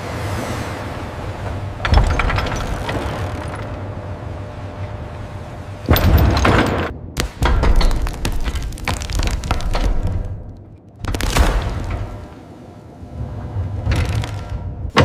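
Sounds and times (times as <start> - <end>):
crackling metallic clatter: 1.6 - 4.0, 5.9 - 12.4.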